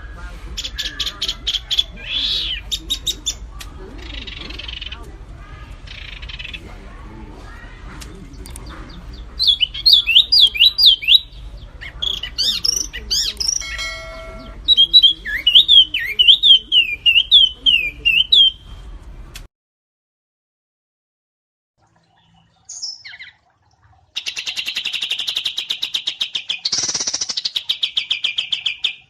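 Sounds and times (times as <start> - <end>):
songbird whistling song: 0.0 - 3.4, 8.4 - 18.8, 22.2 - 23.4, 24.2 - 29.0
low steady hum: 0.0 - 19.4.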